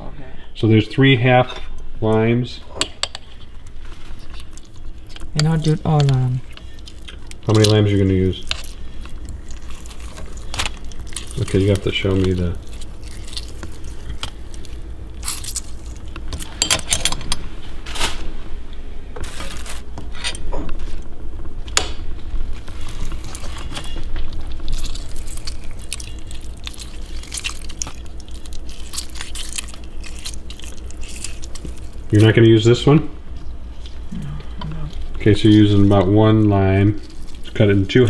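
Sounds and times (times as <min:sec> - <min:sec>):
steady low hum: 0:00.0 - 0:38.0
utensils and dishes clinking: 0:15.2 - 0:17.4.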